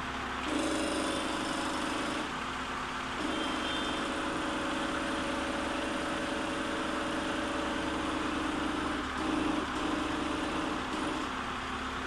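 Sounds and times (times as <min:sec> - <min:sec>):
car engine idling: 0:01.3 - 0:12.0.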